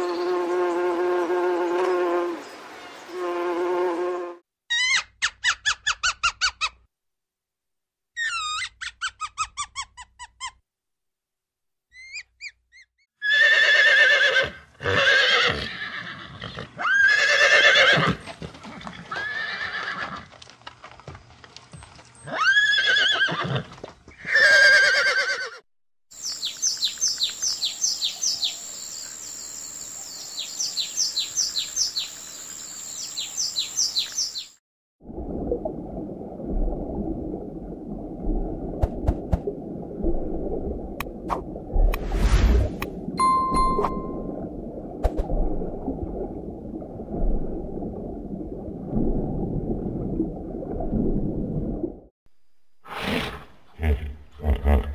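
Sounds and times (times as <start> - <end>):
horse neighing: 13.2 - 18.2, 19.1 - 20.3, 22.3 - 25.6, 52.9 - 54.9
low rumble under water: 35.0 - 43.2, 44.1 - 52.1
steady high tone: 43.2 - 44.5.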